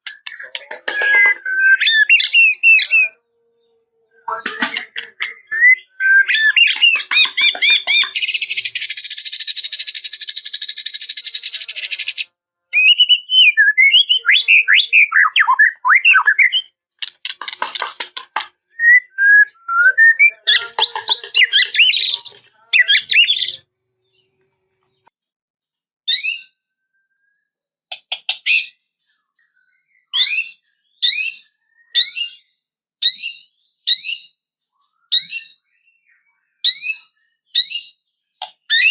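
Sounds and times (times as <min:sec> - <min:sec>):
songbird singing: 0:00.0 - 0:12.2, 0:12.8 - 0:16.7, 0:17.3 - 0:25.1.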